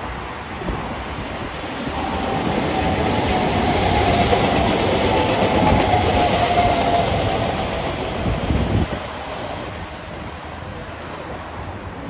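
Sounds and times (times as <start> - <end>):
thin high whine: 0.0 - 12.0
wheels rushing on rails: 0.0 - 12.0.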